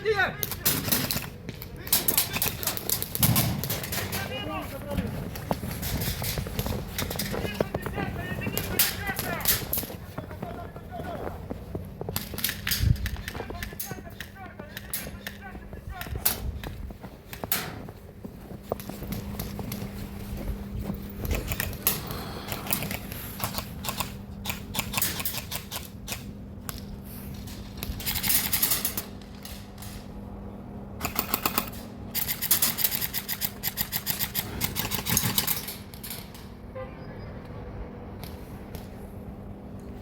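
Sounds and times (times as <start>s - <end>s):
airsoft guns firing: 0.4s - 4.3s, 31.0s - 35.7s.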